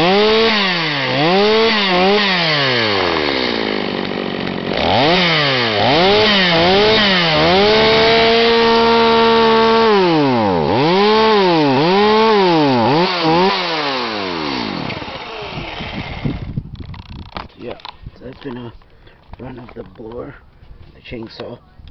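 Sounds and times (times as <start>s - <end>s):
chainsaw revving: 0.0s - 17.2s.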